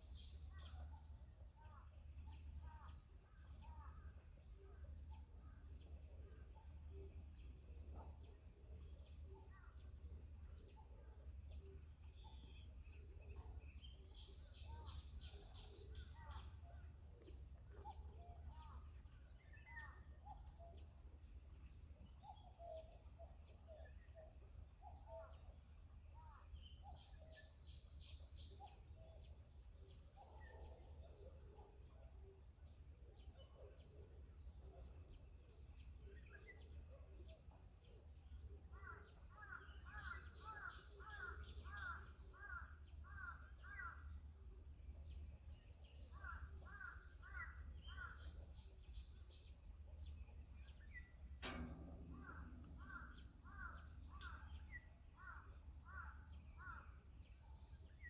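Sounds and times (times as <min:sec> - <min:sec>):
sharp click: 0:51.3 - 0:54.9.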